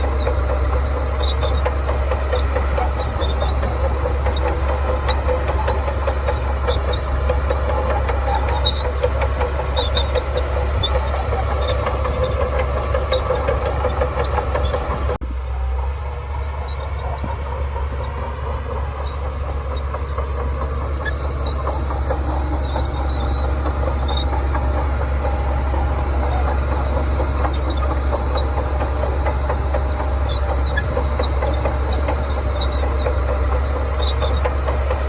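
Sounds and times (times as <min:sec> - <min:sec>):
steel tracks rattling: 0:00.0 - 0:15.2, 0:15.8 - 0:35.0
bulldozer diesel engine running: 0:00.0 - 0:35.0.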